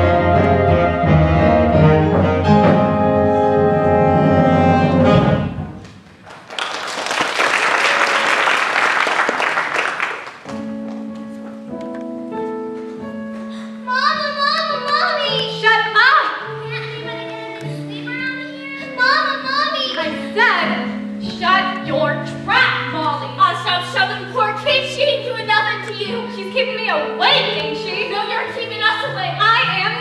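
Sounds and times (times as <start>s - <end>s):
pit orchestra playing: 0.0s - 5.8s
audience applause: 6.1s - 10.5s.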